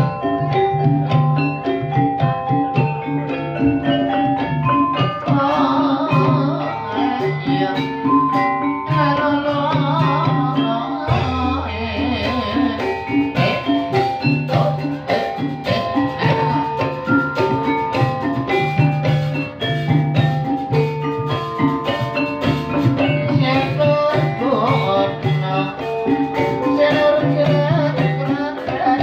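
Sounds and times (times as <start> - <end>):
mallet percussion and drums: 0.0 - 29.0
person singing: 5.0 - 17.6, 22.9 - 29.0.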